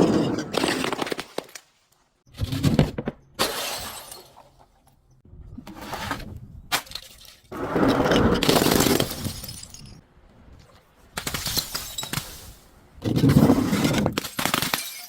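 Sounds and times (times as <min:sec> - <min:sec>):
glass bottles shattering: 0:03.4 - 0:04.6, 0:08.5 - 0:10.0, 0:11.3 - 0:12.2, 0:14.3 - 0:15.0.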